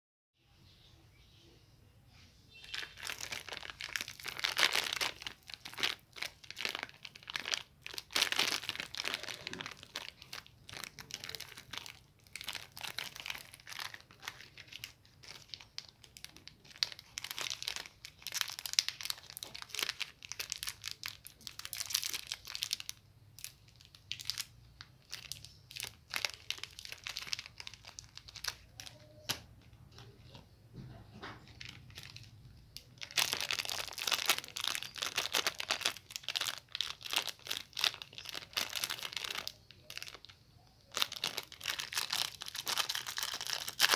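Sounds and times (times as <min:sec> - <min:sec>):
wrappers crinkling and tearing: 0:02.6 - 0:30.4, 0:31.3 - 0:43.9.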